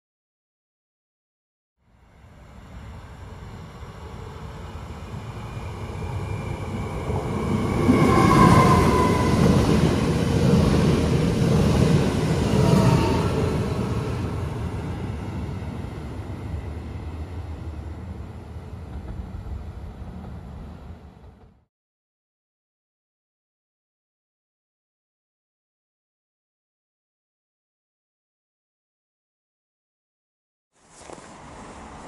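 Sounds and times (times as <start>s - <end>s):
electric train rushing past: 2.0s - 21.6s.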